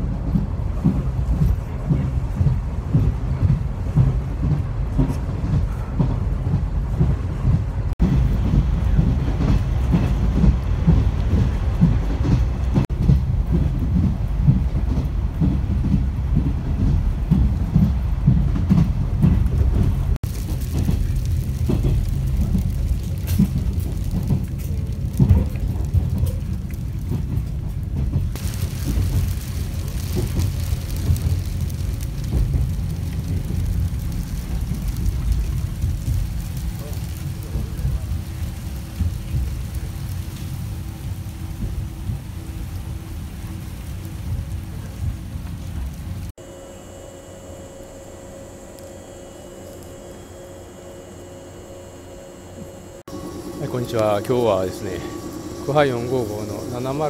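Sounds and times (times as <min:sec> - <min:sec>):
wheels clickety-clack: 0:00.0 - 0:46.3, 0:53.1 - 0:57.0
train wheels rumbling on rails: 0:00.0 - 0:46.4, 0:51.6 - 0:57.0.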